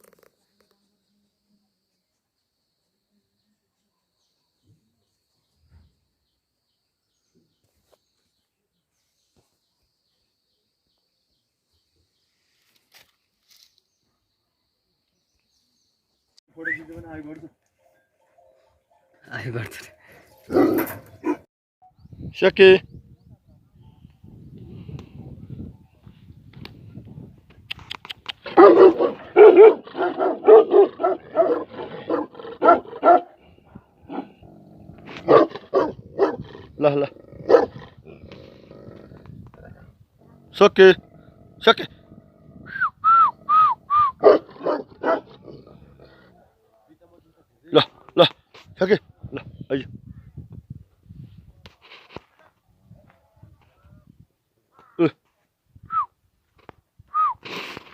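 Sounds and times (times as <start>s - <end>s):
dog barking: 20.5s - 21.5s, 28.5s - 33.4s, 35.2s - 36.4s, 37.4s - 37.8s, 44.2s - 45.4s.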